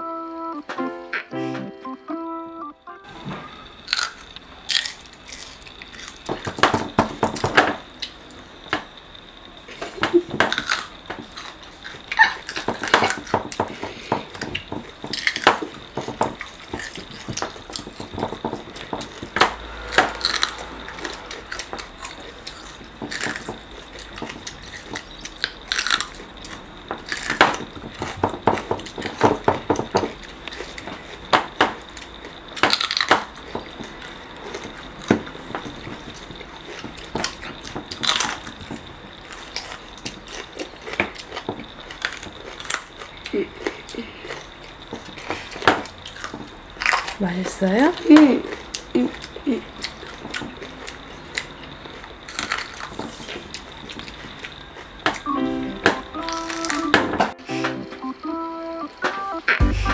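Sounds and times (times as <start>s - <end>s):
faint high-pitched tone: 0.0s - 3.9s, 19.4s - 22.8s, 55.3s - 59.9s
crunching and chewing peppers: 3.1s - 57.1s.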